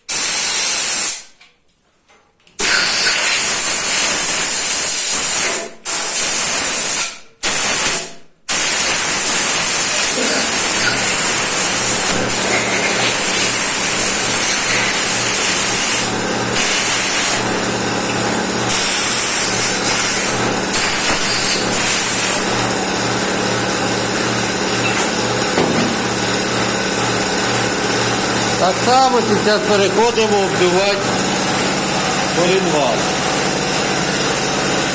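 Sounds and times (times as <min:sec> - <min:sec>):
pulsing motor hum: 0:10.1 - 0:34.9.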